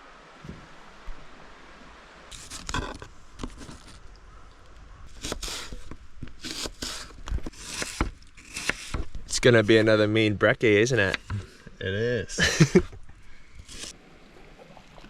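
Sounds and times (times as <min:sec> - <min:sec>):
scraping and rustling: 0:02.3 - 0:04.2.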